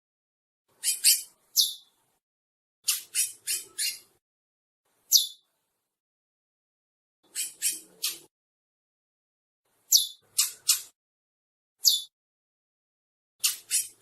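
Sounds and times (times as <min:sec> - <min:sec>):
finch chirping calls: 0:00.8 - 0:01.9, 0:02.8 - 0:04.2, 0:05.1 - 0:05.5, 0:07.3 - 0:08.3, 0:09.9 - 0:11.0, 0:11.8 - 0:12.1, 0:13.4 - 0:14.0.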